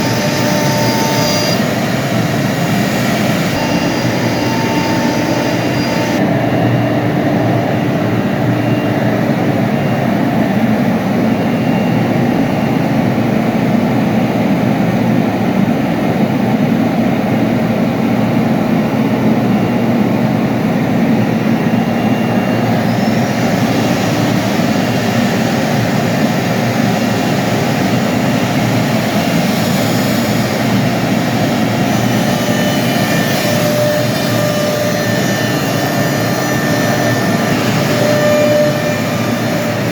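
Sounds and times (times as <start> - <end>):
milling machine running: 0.0 - 9.8, 21.4 - 39.9
faint rising whine: 0.0 - 10.0.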